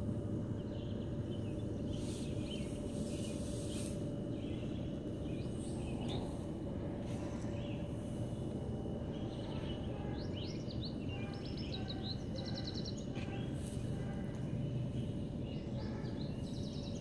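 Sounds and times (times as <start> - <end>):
low outdoor background noise: 0.0 - 17.0
small birds chirping: 0.0 - 17.0
bird trill: 9.2 - 14.4, 15.4 - 17.0.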